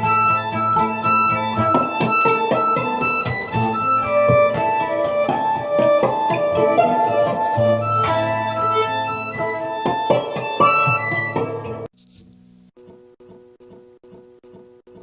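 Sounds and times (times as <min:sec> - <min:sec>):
acoustic guitar plucking: 0:00.0 - 0:11.9
violin bowed notes: 0:00.0 - 0:11.9.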